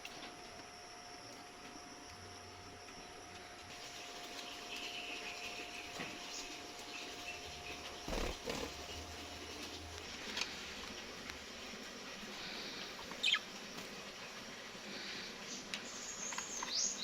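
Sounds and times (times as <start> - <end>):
budgies chirping: 12.9 - 13.6.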